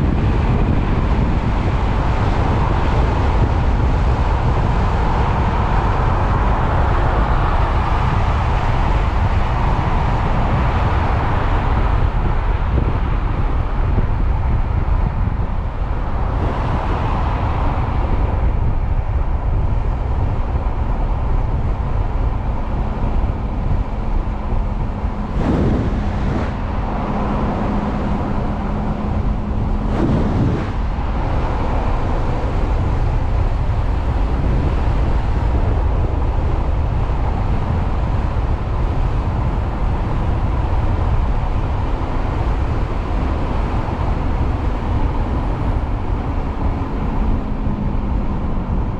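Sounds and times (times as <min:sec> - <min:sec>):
road noise: 0:00.0 - 0:48.9
wind buffeting microphone: 0:00.0 - 0:48.9
low hum: 0:11.8 - 0:37.5.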